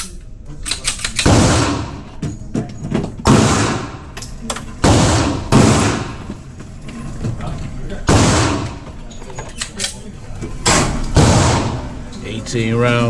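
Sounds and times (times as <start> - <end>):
pistol shots with echo: 1.2 - 2.1, 3.3 - 4.2, 4.8 - 6.3, 8.1 - 8.8, 10.7 - 12.0.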